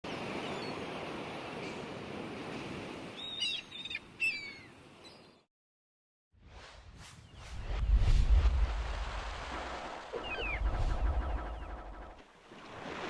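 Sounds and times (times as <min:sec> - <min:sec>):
steady rushing noise: 0:06.5 - 0:09.9
birds whistling: 0:10.2 - 0:12.2.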